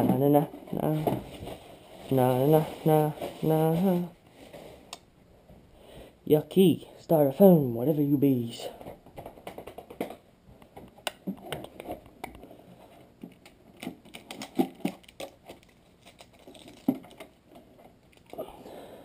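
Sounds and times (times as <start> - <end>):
styrofoam packing crinkling: 13.2 - 18.4.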